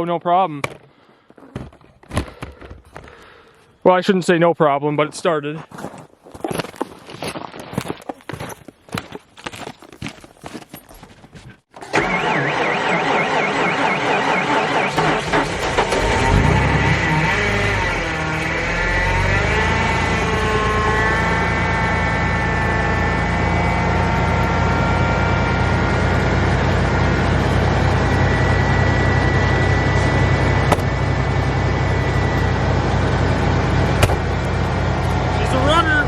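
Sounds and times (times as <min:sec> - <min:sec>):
truck engine idling: 0:12.0 - 0:36.0
high whine: 0:15.7 - 0:26.3.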